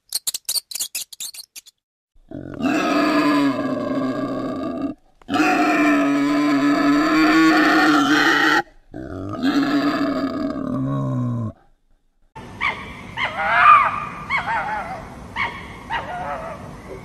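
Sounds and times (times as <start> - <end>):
mouse squeaking: 0.0 - 1.8
wild boar calling: 2.3 - 11.1, 12.6 - 17.0.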